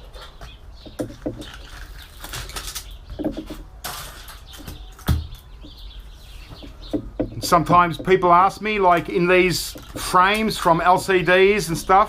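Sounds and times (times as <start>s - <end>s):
computer parts clicking and knocking: 0.8s - 5.8s, 6.6s - 8.3s.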